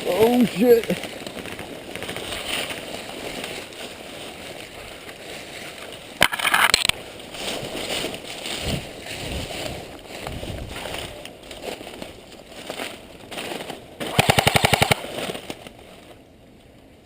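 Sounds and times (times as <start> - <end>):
crunching through dry leaves: 0.0 - 16.4
short sharp noise burst: 14.0 - 15.2.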